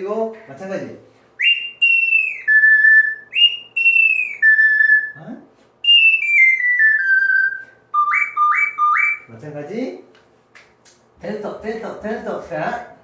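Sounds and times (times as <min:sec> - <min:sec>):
ocarina melody: 0:01.4 - 0:05.2, 0:05.8 - 0:09.3.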